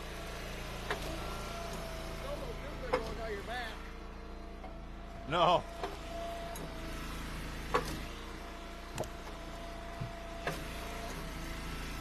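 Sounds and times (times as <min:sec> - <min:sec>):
steady engine hum: 0:00.0 - 0:12.0
firewood knocking onto pile: 0:09.0 - 0:09.2.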